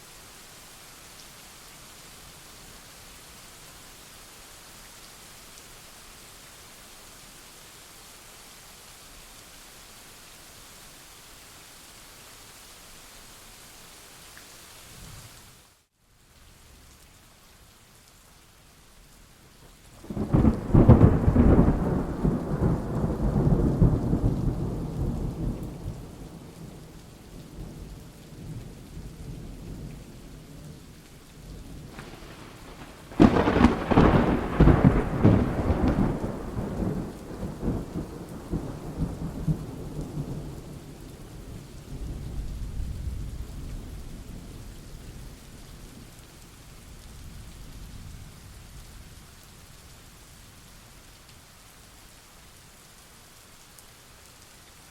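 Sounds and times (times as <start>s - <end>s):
steady rain: 0.0s - 54.9s
thunder rumbling: 20.0s - 26.8s, 31.6s - 41.3s
thunder crack: 31.8s - 37.9s.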